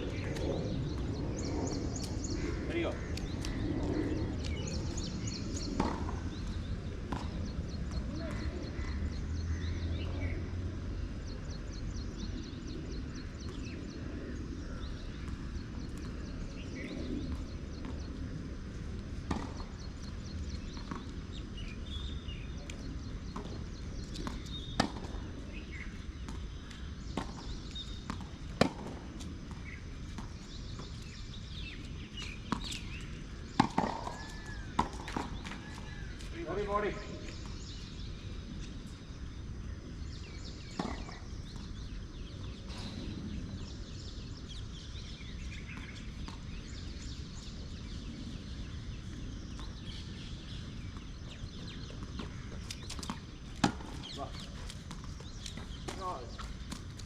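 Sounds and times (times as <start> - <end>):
tennis balls struck by rackets: 5.5 - 9.2, 15.1 - 21.7, 22.6 - 37.7, 40.6 - 42.9, 49.4 - 57.0.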